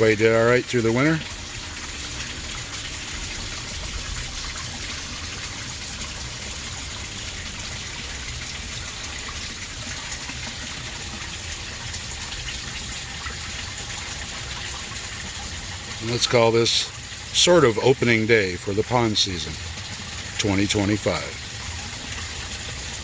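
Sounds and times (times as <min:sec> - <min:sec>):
waterfall splashing: 0:00.0 - 0:23.0.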